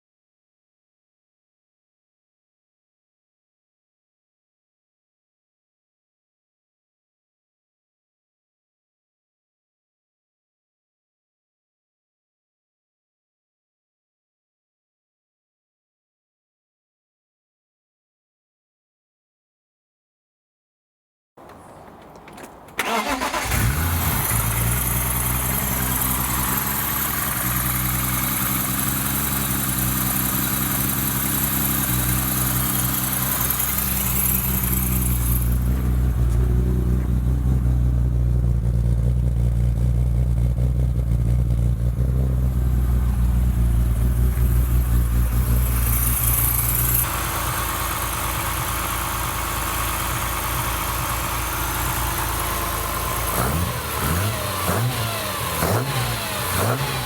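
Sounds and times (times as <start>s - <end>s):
race engine idling: 21.4s - 57.0s.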